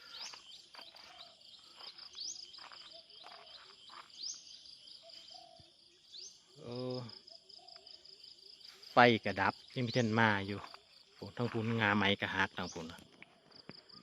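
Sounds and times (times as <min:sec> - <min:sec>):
birds chirping: 0:00.0 - 0:14.0
insects trilling: 0:00.0 - 0:14.0.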